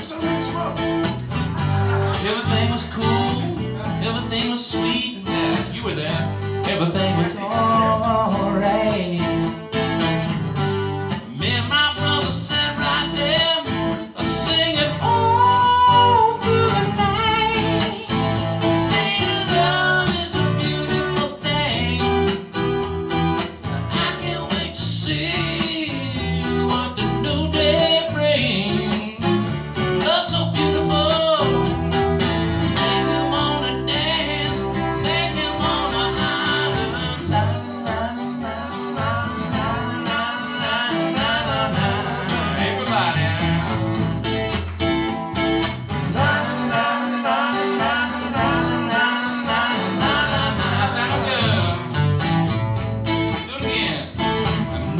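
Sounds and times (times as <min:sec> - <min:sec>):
acoustic guitars strummed and picked: 0:00.0 - 0:54.9
person singing: 0:11.3 - 0:22.3, 0:32.8 - 0:43.8, 0:46.1 - 0:52.0.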